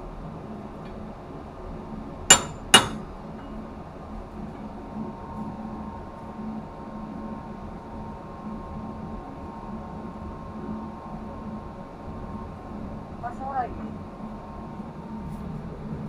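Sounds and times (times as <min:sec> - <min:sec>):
machinery hum: 0:00.0 - 0:16.0
metal striking metal clanks: 0:02.3 - 0:03.6.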